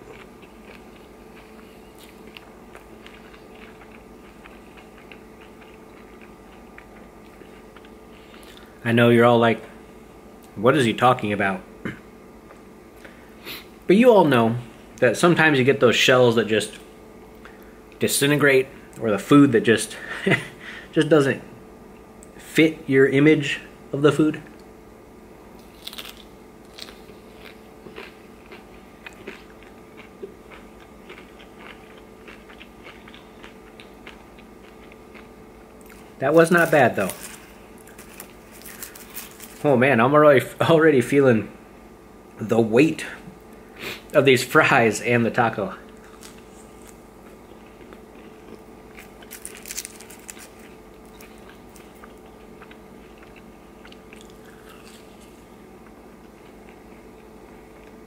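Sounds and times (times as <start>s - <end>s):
person chewing crunchy food: 0.0s - 8.8s, 25.6s - 39.7s, 45.8s - 58.0s
faint steady hum: 0.0s - 58.0s.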